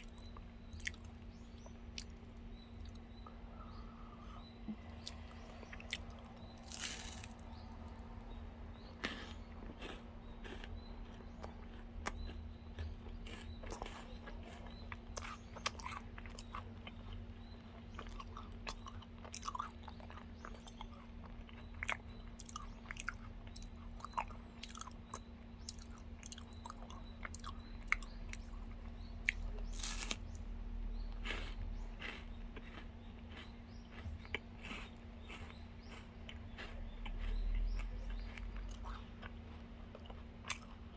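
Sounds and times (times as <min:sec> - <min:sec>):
chewing crunchy chocolate: 0:00.0 - 0:40.9.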